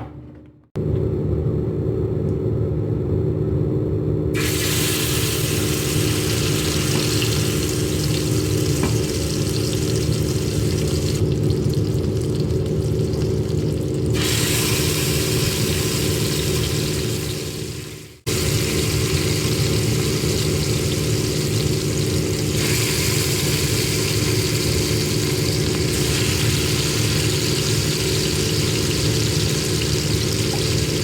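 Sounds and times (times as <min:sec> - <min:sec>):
low motor rumble and hum: 0:00.0 - 0:04.4, 0:05.1 - 0:31.0
hiss: 0:04.4 - 0:07.6, 0:14.2 - 0:17.0.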